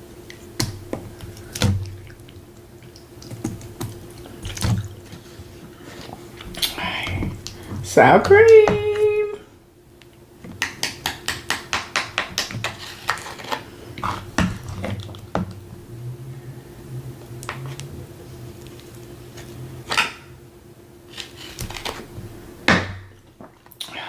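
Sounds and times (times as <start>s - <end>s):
faint low hum: 0.0s - 11.4s, 12.5s - 24.0s
spoon tapping rapidly on dish: 10.6s - 12.6s.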